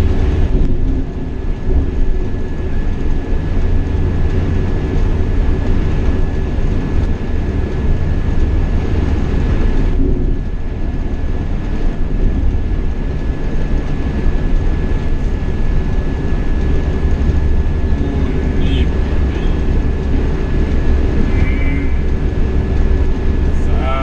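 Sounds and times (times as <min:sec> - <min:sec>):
bus engine and road rumble: 0:00.0 - 0:24.0
thin steady whine: 0:14.1 - 0:24.0.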